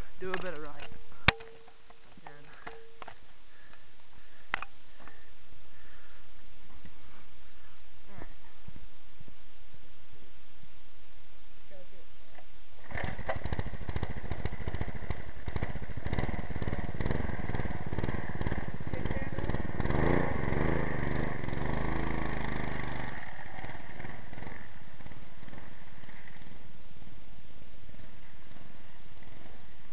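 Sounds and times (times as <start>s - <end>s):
minibike engine revving: 12.8s - 29.9s.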